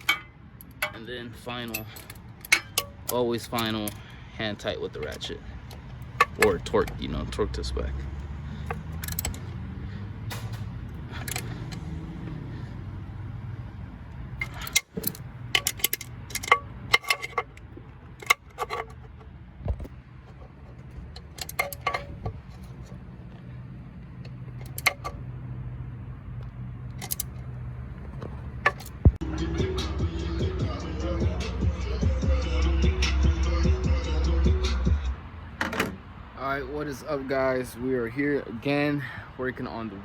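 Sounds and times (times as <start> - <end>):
metallic clicks of hand tools: 0.0 - 4.1, 5.0 - 7.1, 8.5 - 9.6, 10.3 - 12.1, 14.4 - 19.2, 21.1 - 22.8, 24.2 - 25.2, 26.9 - 27.4, 28.6 - 29.1
ratchet working on bolts: 0.0 - 4.1, 5.0 - 7.2, 8.2 - 12.5, 14.3 - 19.3, 20.4 - 23.0, 24.2 - 25.2, 27.0 - 27.4, 28.5 - 29.2.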